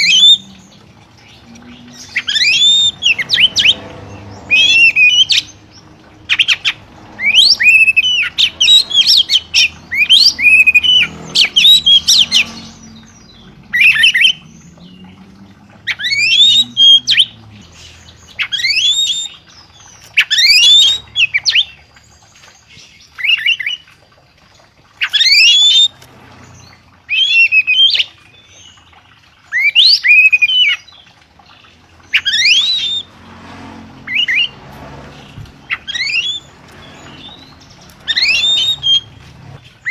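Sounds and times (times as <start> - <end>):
songbird sharp rising calls: 0.0 - 21.8, 32.0 - 33.2, 34.0 - 39.9.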